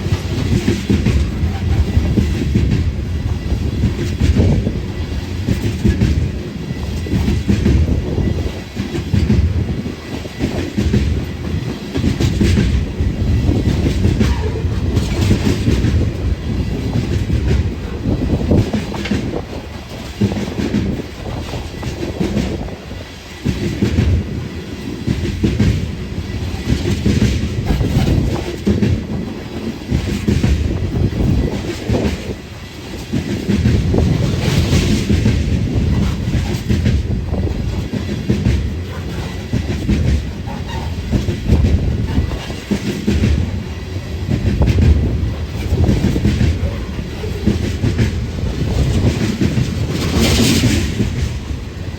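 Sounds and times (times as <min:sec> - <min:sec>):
train rumbling past: 0:00.0 - 0:51.9
wheels clacking on rails: 0:00.0 - 0:51.9.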